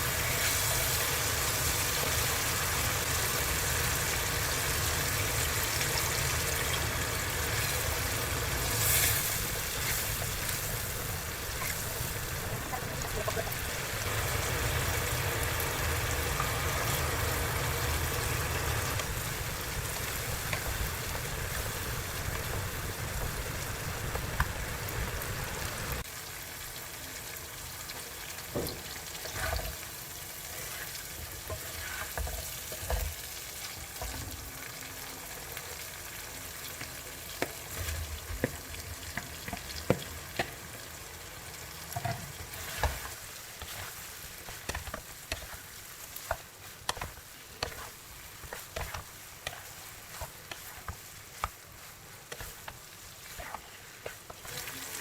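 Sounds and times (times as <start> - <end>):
food sizzling in oil: 0.0 - 55.0
spatula scraping and tapping pan: 8.8 - 13.7, 18.9 - 23.4, 28.5 - 29.8, 30.6 - 33.2, 41.9 - 55.0.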